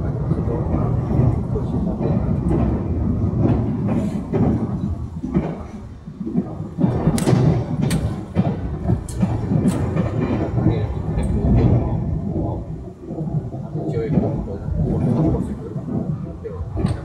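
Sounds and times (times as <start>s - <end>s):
train running rumble: 0.0s - 17.0s
sharp clicks or knocks: 6.8s - 10.5s.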